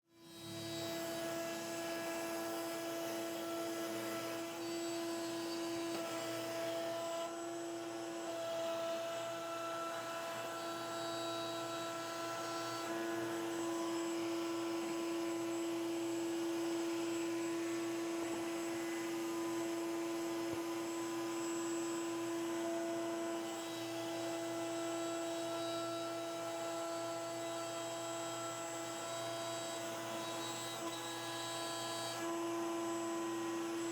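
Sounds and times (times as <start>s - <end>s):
electric router high whine: 0.1s - 33.9s.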